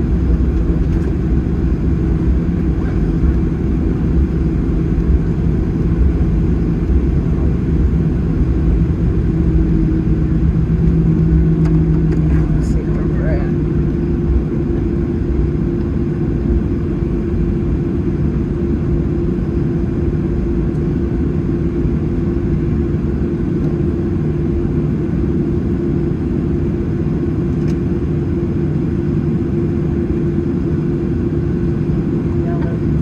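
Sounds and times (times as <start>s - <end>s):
constant hum: 0.0s - 33.0s
jet engines idling in cabin: 0.0s - 33.0s.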